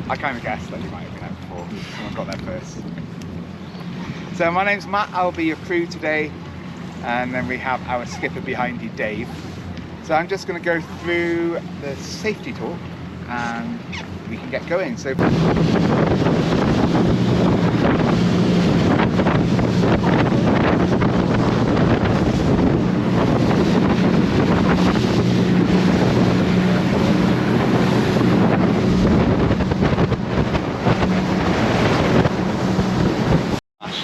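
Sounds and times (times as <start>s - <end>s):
boat engine humming: 0.0s - 34.0s
water noise: 0.0s - 34.0s
wind on microphone: 0.0s - 34.0s.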